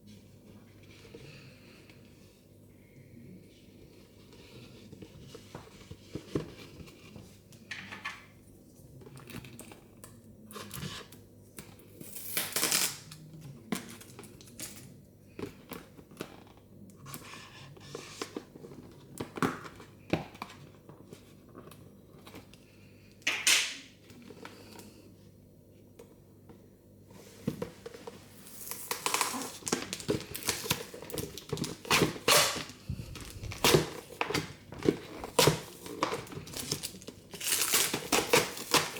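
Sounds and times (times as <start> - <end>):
plastic wrappers crinkling and tearing: 12.0 - 13.1, 28.4 - 38.9.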